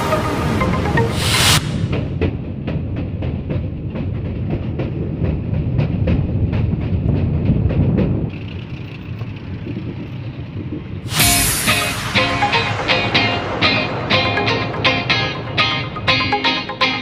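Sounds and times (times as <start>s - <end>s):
music: 0.0s - 2.2s, 11.1s - 17.0s
train rumble: 0.0s - 17.0s
train wheels clicking: 0.8s - 9.6s.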